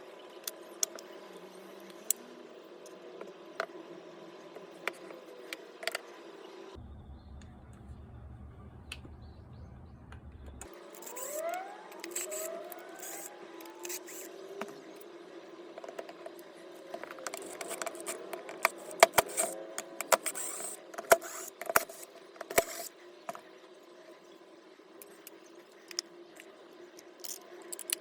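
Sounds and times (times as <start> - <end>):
low hum: 6.7 - 18.8.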